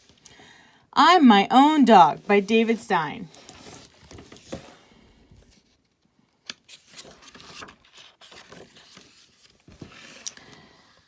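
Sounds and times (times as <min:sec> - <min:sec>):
book pages rustling: 0:02.6 - 0:11.0.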